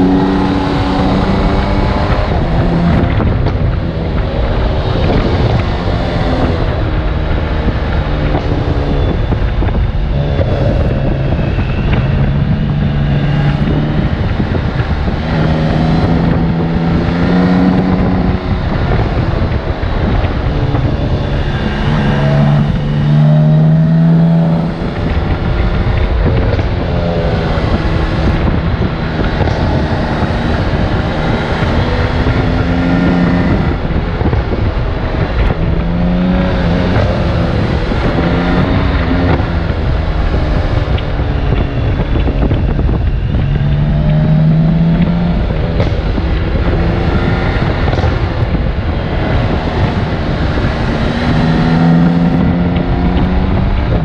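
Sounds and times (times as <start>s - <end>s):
motorcycle engine running: 0.0s - 54.0s
wind noise: 0.0s - 54.0s.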